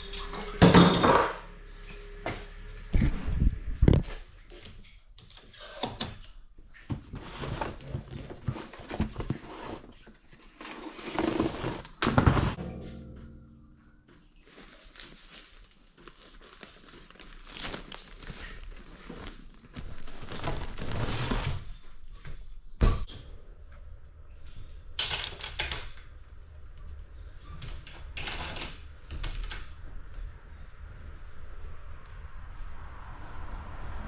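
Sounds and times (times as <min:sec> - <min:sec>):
knocks and clatters: 0:12.1 - 0:14.5.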